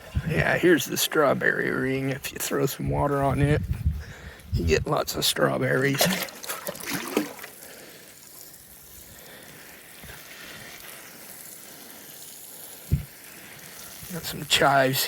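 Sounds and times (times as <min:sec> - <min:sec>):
water pouring from a jug: 0:05.8 - 0:08.6.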